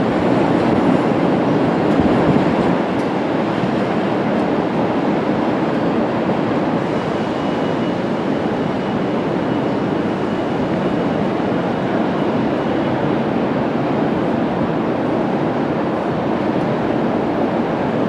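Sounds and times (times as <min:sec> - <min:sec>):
train wheels rushing on rails: 0:00.0 - 0:18.0
faint high whine: 0:05.5 - 0:15.0.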